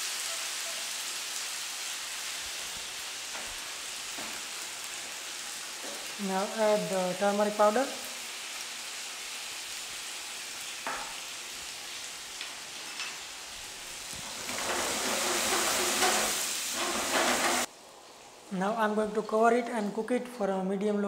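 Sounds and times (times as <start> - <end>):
potatoes sizzling in oil: 0.0 - 20.2
wooden spatula stirring: 14.4 - 17.7.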